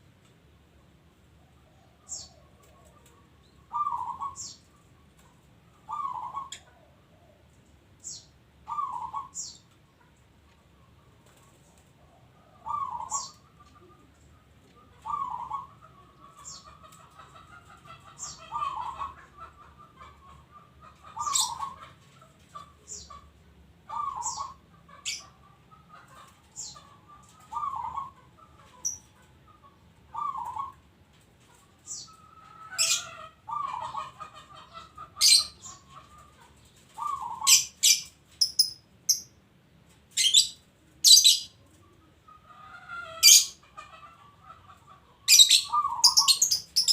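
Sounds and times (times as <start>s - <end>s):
dove cooing: 1.6s - 4.7s, 5.8s - 7.5s, 8.6s - 9.6s, 12.0s - 23.3s, 23.9s - 29.1s, 30.1s - 30.9s, 31.9s - 38.0s, 40.2s - 46.9s.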